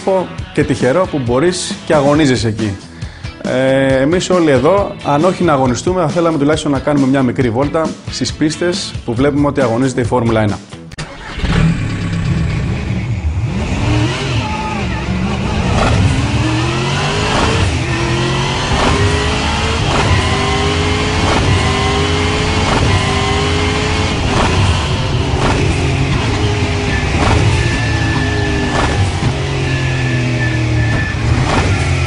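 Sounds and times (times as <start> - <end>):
car engine revving hard: 11.1 - 32.0.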